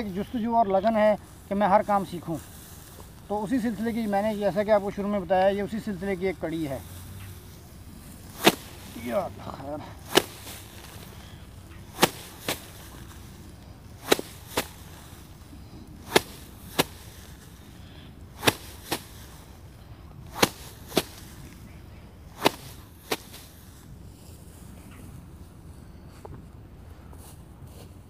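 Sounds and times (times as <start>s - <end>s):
rice stalks slapped by hand: 0.8s - 9.4s, 10.0s - 19.6s, 20.2s - 21.7s, 22.3s - 23.8s.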